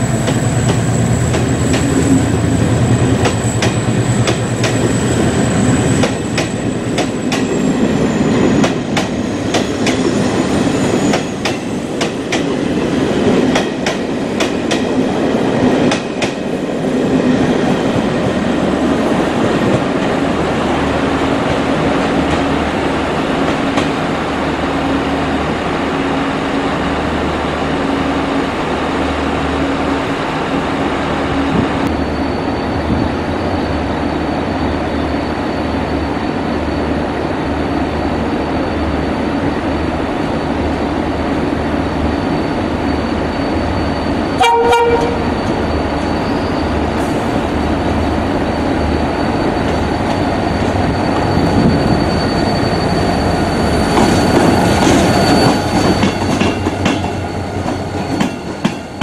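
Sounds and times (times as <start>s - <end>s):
train wheels clattering on rails: 0.0s - 20.7s, 23.4s - 24.1s, 49.2s - 59.0s
diesel locomotive running: 0.0s - 59.0s
locomotive horn toot: 44.4s - 45.4s.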